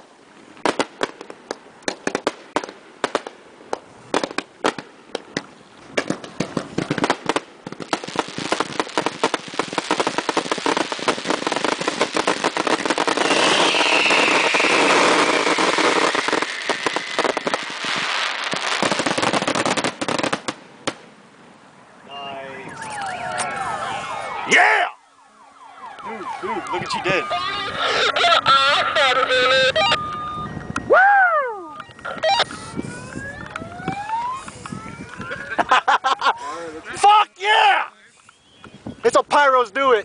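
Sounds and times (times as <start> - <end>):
fireworks bangs: 0.6 - 21.1, 31.9 - 35.6
falling firework whistle: 12.1 - 18.9, 29.4 - 35.4.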